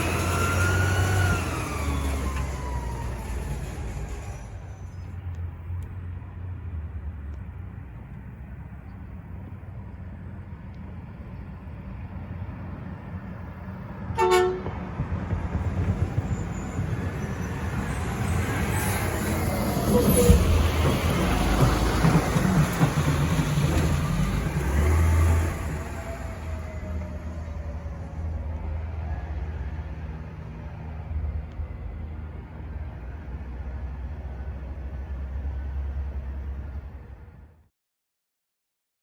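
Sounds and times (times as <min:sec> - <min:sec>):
garbage truck driving off: 0:00.0 - 0:05.2, 0:14.4 - 0:30.6
truck engine idling rumble: 0:00.0 - 0:37.6
truck approaching: 0:00.0 - 0:37.7
truck horn toot: 0:14.2 - 0:14.8.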